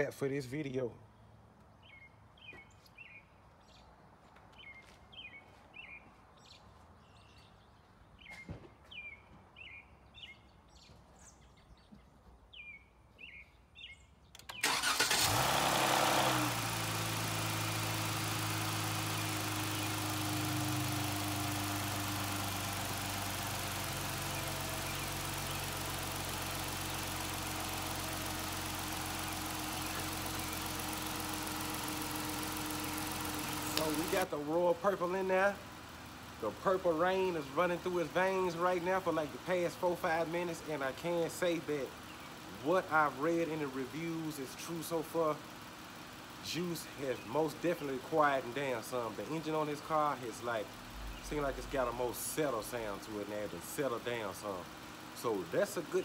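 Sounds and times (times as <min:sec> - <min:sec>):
birds chirping: 0:00.6 - 0:15.1, 0:17.9 - 0:56.0
car engine starting and idling: 0:14.4 - 0:56.0.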